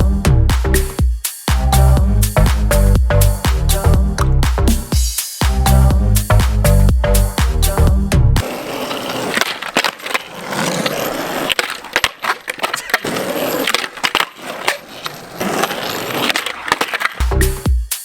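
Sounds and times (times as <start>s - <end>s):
skateboard rolling on concrete: 8.4s - 17.6s
skateboard trucks clacking: 8.4s - 17.6s.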